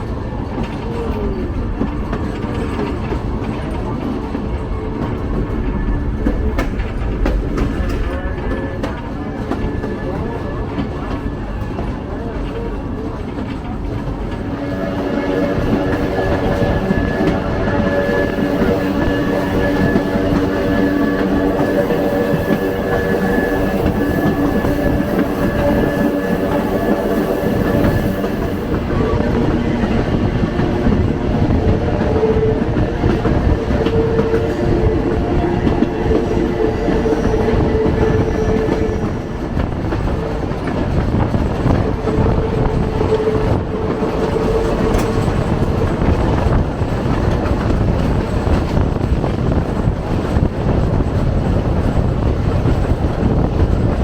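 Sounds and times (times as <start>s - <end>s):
train wheels rumbling on rails: 0.0s - 54.0s
humming tones: 14.3s - 39.6s.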